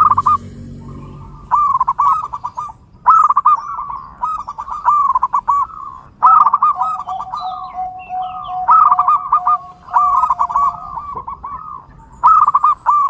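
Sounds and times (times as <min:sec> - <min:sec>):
low held note: 0:00.0 - 0:03.0
small birds chirping: 0:00.0 - 0:13.0
dove cooing: 0:04.2 - 0:13.0.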